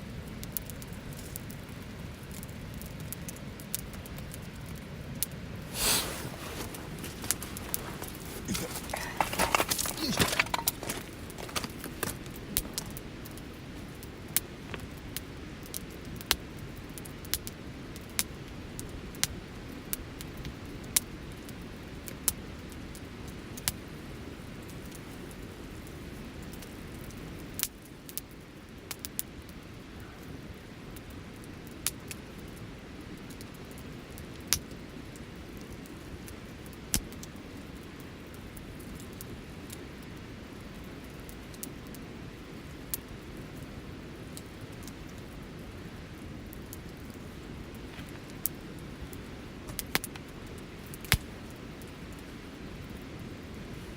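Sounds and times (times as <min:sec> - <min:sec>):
wood crackles and pops: 0:05.2 - 0:17.5, 0:44.2 - 0:52.5
campfire flame rushing: 0:05.4 - 0:14.0.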